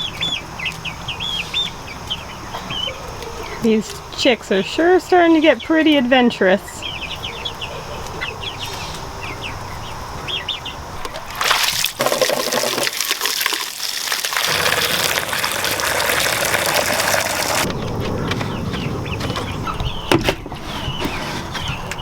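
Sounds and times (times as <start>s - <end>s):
chicks peeping: 0.0s - 11.3s, 17.5s - 22.0s
water rushing from garden hose: 11.2s - 17.7s.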